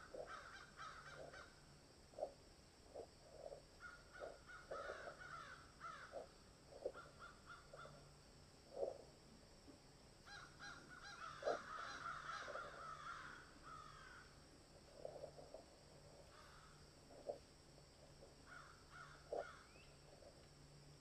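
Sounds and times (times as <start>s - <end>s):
birds calling harshly: 0.0s - 1.5s, 3.8s - 6.2s, 10.3s - 14.3s, 18.5s - 20.0s
low steady hum: 0.0s - 21.0s.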